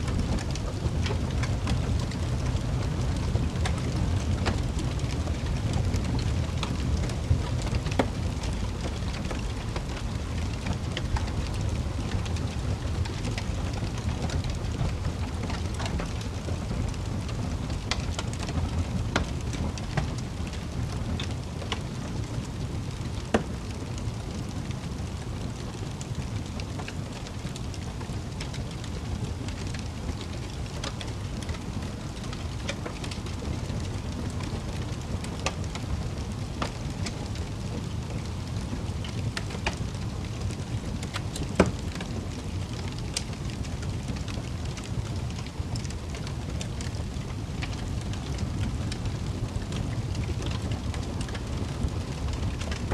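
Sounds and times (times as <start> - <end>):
wood fire crackling: 0.0 - 52.9
loud fire pops: 27.5 - 52.9.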